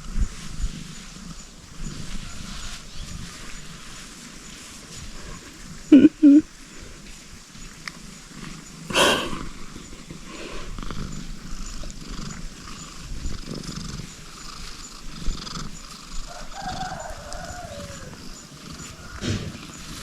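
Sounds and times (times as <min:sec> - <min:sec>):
cat purring: 0:04.8 - 0:06.4, 0:07.6 - 0:20.0.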